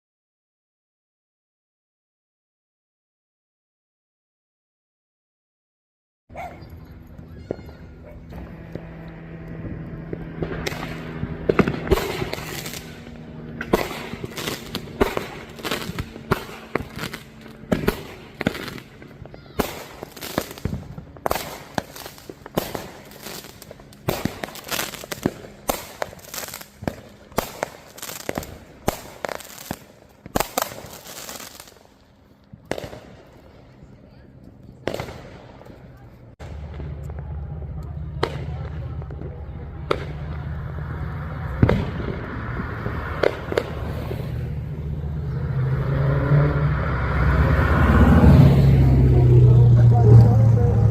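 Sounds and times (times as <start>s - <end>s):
fireworks cracking and banging: 7.4s - 45.3s.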